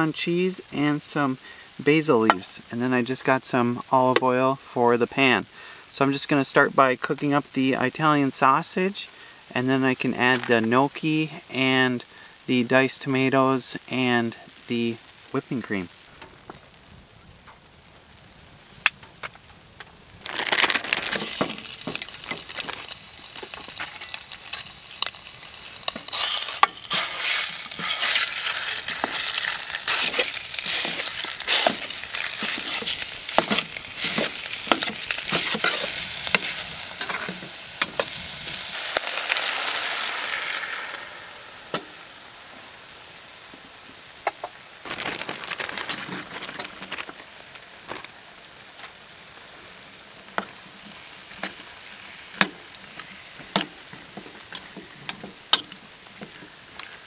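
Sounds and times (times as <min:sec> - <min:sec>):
sausage sizzling in a pan: 0:05.1 - 0:57.0
stirring clicks and scrapes: 0:20.3 - 0:38.2.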